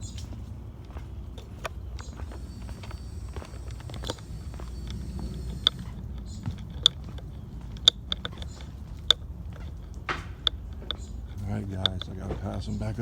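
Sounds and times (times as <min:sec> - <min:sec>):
footsteps crunching on trail: 0:00.0 - 0:13.0
steady low rumble: 0:00.0 - 0:13.0.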